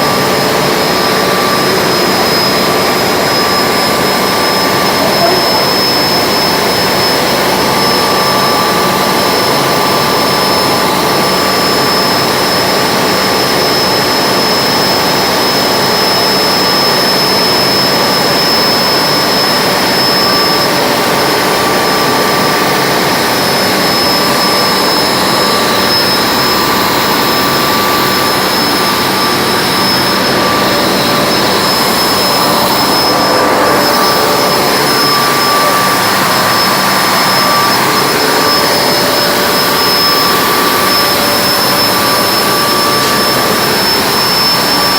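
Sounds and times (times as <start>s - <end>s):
high whine: 0.0s - 44.9s
ship engines running: 17.7s - 44.9s.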